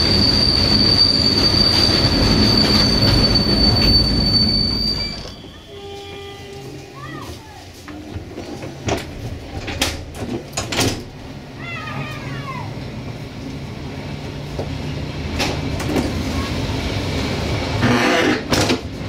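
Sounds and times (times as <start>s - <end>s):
train low drone: 0.0s - 19.0s
wheels clicking over rails: 7.8s - 11.2s.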